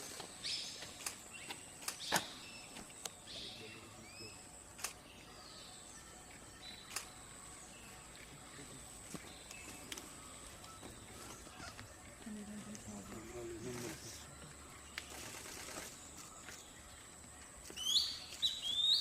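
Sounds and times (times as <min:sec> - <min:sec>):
birds chirping: 0:00.0 - 0:19.0
bird whistles: 0:17.8 - 0:19.0.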